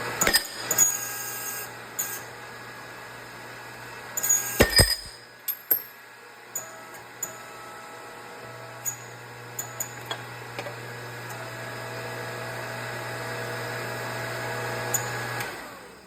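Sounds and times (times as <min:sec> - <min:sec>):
shop press humming: 0:00.1 - 0:01.0, 0:04.4 - 0:06.0
metal clicks and clinks: 0:04.6 - 0:06.0.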